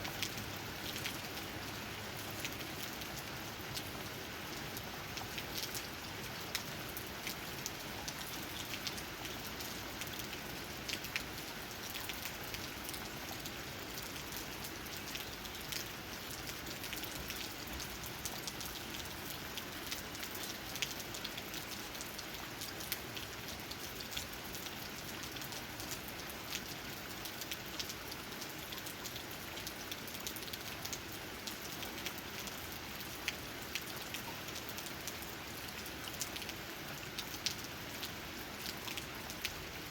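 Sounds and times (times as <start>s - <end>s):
raindrops tapping on leaves: 0.0s - 39.9s
steady rain hiss: 0.0s - 39.9s.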